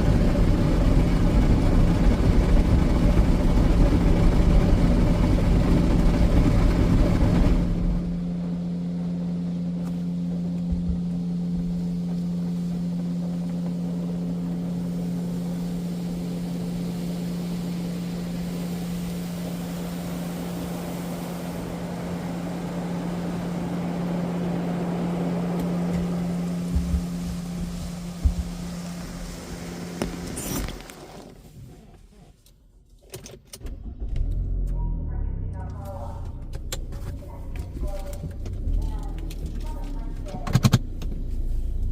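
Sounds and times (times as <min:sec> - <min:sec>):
car wash motor hum: 0:00.0 - 0:32.5, 0:33.7 - 0:41.9
rush of spraying water: 0:13.7 - 0:31.6.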